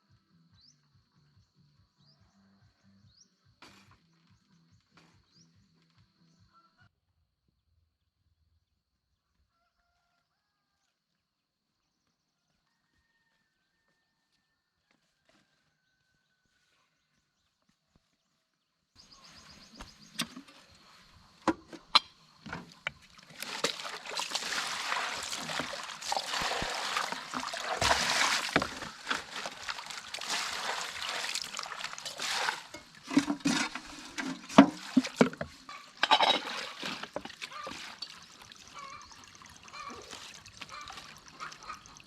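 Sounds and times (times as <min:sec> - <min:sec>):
water splashing and trickling: 0:19.1 - 0:42.0.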